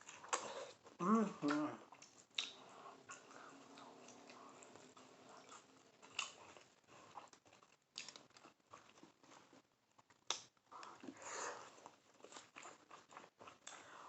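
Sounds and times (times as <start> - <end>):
person chewing close up: 0.0 - 14.0
wet mouth clicks and smacks: 1.4 - 2.6.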